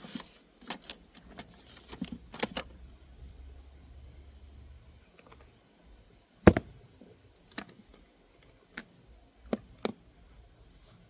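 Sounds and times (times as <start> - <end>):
makeup case clicks and knocks: 6.5 - 6.7.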